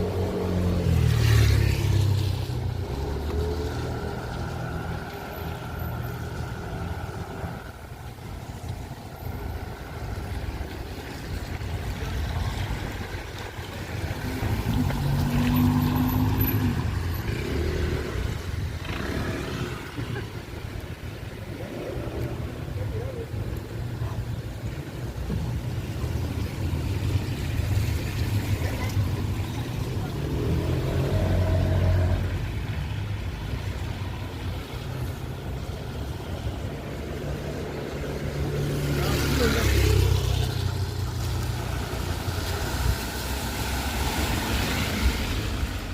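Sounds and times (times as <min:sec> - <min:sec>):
vehicle engine passing: 0:11.1 - 0:20.3, 0:25.9 - 0:45.9.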